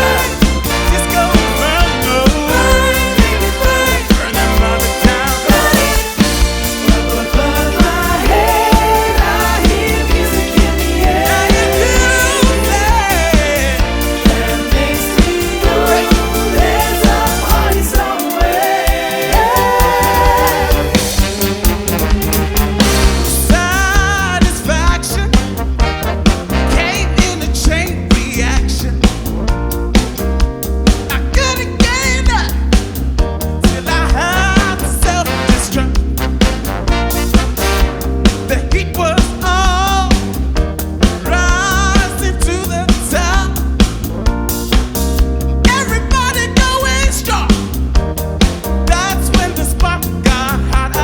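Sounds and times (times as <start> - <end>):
person singing with vibrato: 0.0 - 21.3
drum beat: 0.0 - 29.3, 33.7 - 51.0
bass line: 0.0 - 51.0
disco band playing: 0.0 - 51.0.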